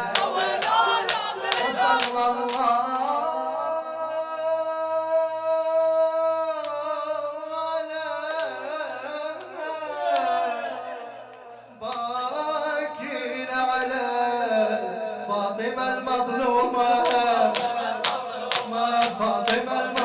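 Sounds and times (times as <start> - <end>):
group chanting: 0.0 - 3.8, 8.0 - 12.2, 15.4 - 20.0
man singing a lament: 0.0 - 11.2, 11.8 - 20.0.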